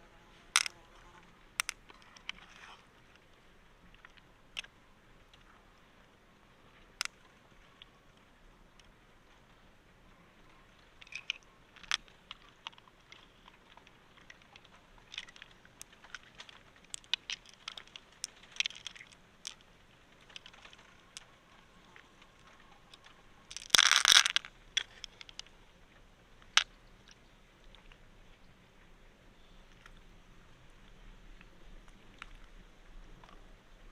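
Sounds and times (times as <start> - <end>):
small clicks and crunches: 0.5 - 5.6, 10.4 - 28.0, 29.6 - 30.1, 30.8 - 33.9.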